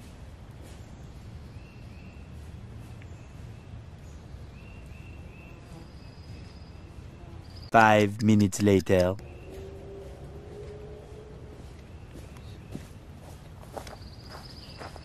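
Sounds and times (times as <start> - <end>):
faint bird chirps: 13.7 - 15.0.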